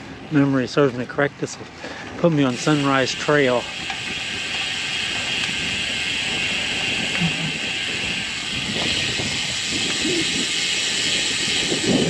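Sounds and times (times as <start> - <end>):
bike tyres hissing on road: 1.7 - 12.0
wind rushing over microphone: 4.0 - 12.0.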